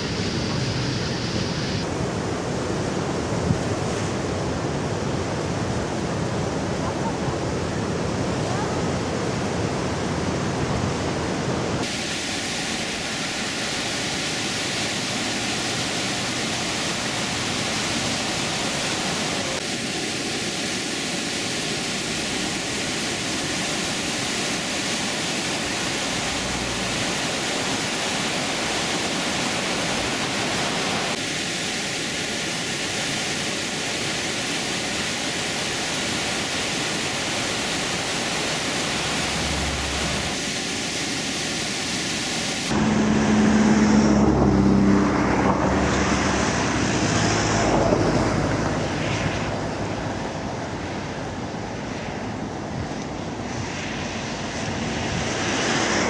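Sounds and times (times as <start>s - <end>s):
rushing storm noise: 0.0s - 56.0s.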